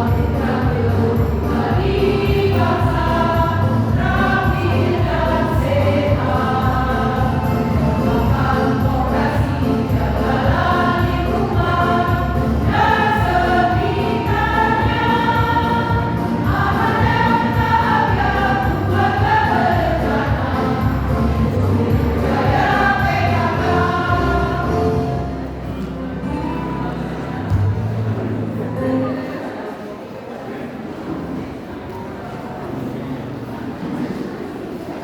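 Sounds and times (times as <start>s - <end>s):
choir singing: 0.0s - 25.6s.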